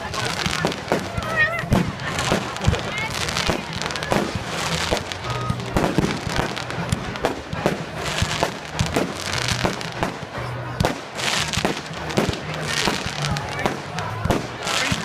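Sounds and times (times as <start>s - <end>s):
background music: 0.0s - 15.0s
fireworks bangs and crackles: 0.0s - 15.0s.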